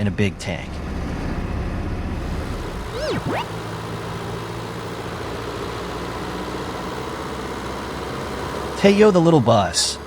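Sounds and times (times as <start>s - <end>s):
swooping whistle-like glide: 2.8s - 3.6s
truck engine idling: 3.5s - 10.0s.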